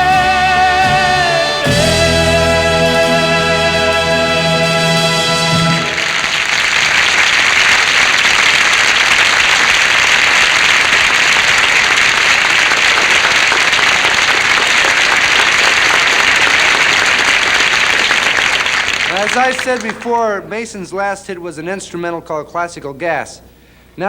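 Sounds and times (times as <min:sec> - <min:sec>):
orchestra playing: 0:00.0 - 0:06.4
audience applauding: 0:05.1 - 0:20.5.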